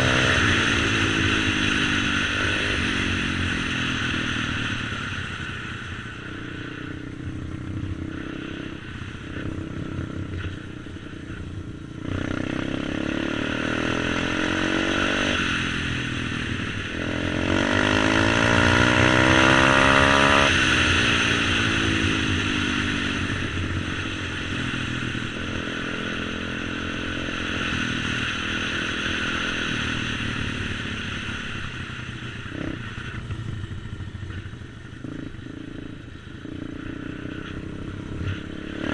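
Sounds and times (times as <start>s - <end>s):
motorbike engine revving: 0.0s - 5.6s, 7.6s - 38.9s.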